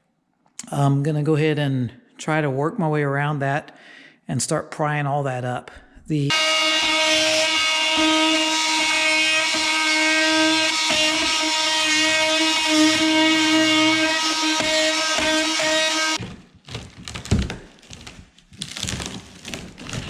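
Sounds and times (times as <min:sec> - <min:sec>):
oscillating multi-tool cutting wood: 0:06.3 - 0:16.2.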